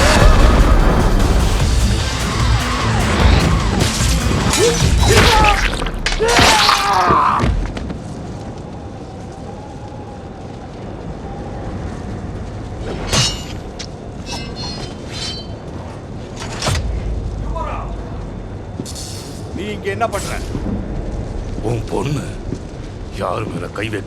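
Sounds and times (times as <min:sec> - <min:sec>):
sharp impacts: 0:00.0 - 0:06.9
dramatic film score: 0:00.0 - 0:08.6, 0:12.8 - 0:24.0.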